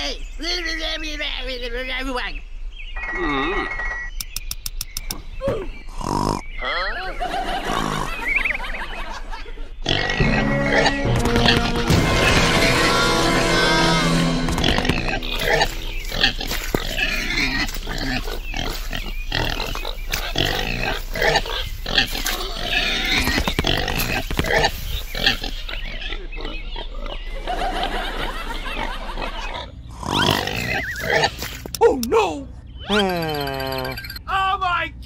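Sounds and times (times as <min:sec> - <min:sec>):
pig grunting: 0:05.8 - 0:08.2, 0:09.8 - 0:27.2, 0:28.8 - 0:31.5.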